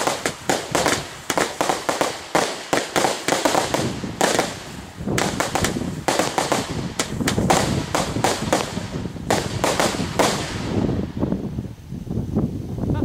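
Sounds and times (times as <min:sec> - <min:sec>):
fireworks bangs and crackles: 0:00.0 - 0:12.4.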